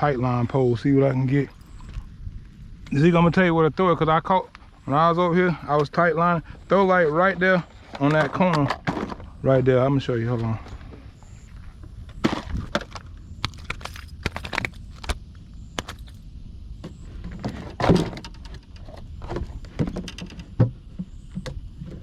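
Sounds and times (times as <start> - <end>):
fishing gear clicking and rattling: 12.8 - 15.2, 15.8 - 16.2.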